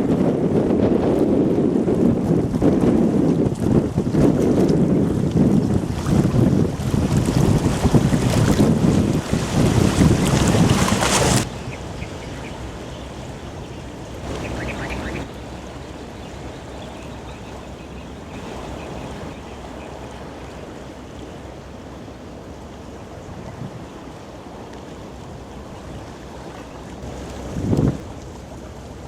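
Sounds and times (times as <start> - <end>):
low rumble of river and ship: 0.0 - 29.0
wind buffeting microphone: 0.0 - 29.0
high chirping: 11.5 - 15.4.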